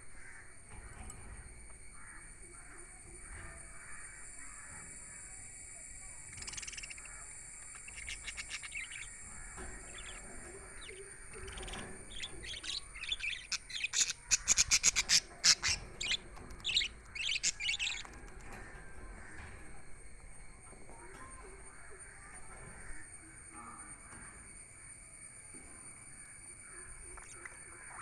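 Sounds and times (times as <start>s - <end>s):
budgerigars chirping: 6.3s - 18.6s.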